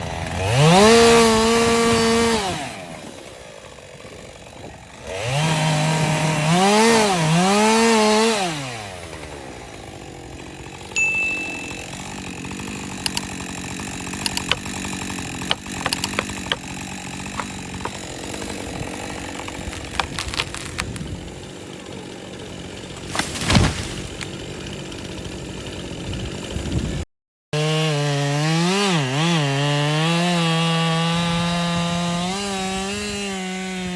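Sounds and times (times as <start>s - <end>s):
chainsaw revving and cutting: 0.0s - 33.9s
sharp cracks: 11.8s - 21.1s.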